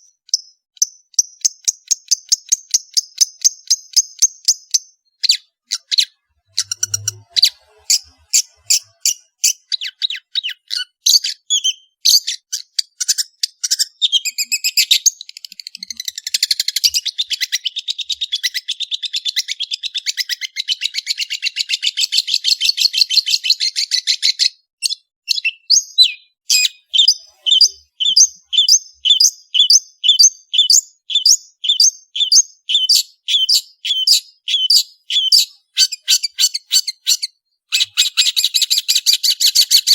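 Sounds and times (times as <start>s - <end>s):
shrike singing: 5.8s - 10.0s.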